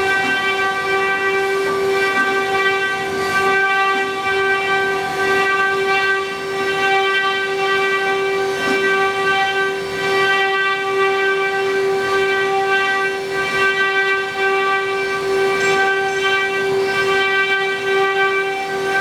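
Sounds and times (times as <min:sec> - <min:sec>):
router spindles high-pitched whine: 0:05.0 - 0:19.0.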